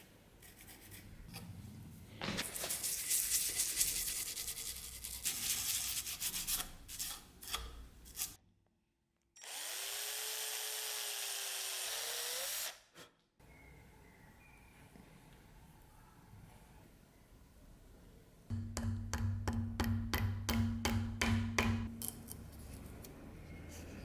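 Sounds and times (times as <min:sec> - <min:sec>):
small power tool whining: 0:09.4 - 0:12.8.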